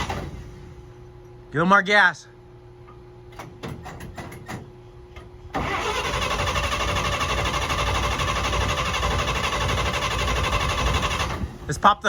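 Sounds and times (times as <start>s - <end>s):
engine starter cranking: 0.0s - 0.6s, 5.6s - 11.7s.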